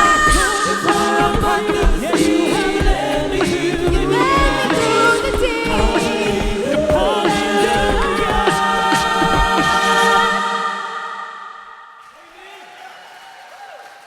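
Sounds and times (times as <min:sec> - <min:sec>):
steady kick drum: 0:00.0 - 0:10.2
voices singing worship music: 0:00.0 - 0:12.2.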